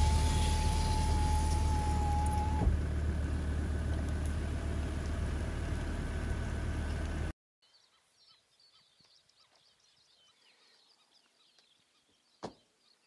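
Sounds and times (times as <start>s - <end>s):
high whine: 0.0s - 3.4s
car engine rumble from inside: 0.0s - 7.4s
faint bird calls: 7.7s - 13.0s.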